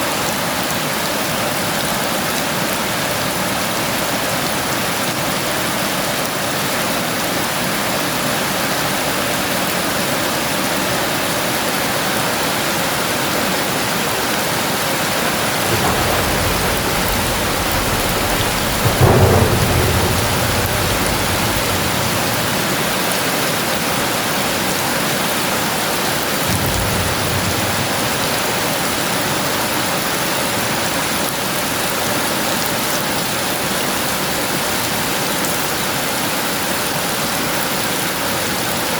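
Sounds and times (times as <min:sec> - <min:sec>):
heavy rain falling: 0:00.1 - 0:38.9
thunder rumbling and cracking: 0:14.6 - 0:35.8.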